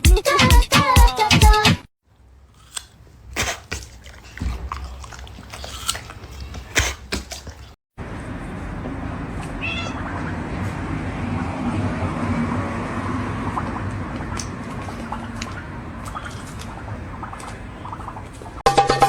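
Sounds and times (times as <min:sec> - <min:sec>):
cat meowing: 0:09.5 - 0:10.1.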